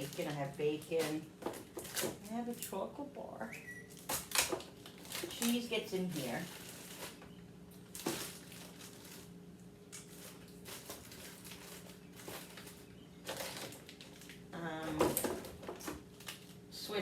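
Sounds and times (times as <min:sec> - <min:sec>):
rustling of plastic packages: 0:00.0 - 0:02.8, 0:03.9 - 0:16.8
steady low hum: 0:00.0 - 0:17.0.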